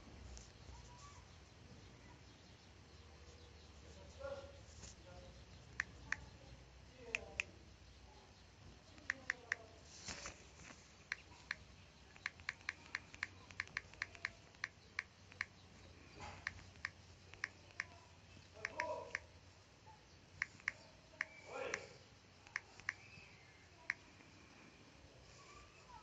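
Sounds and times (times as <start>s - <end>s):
sharp clicks: 5.7s - 6.3s, 8.9s - 19.3s, 20.3s - 23.3s.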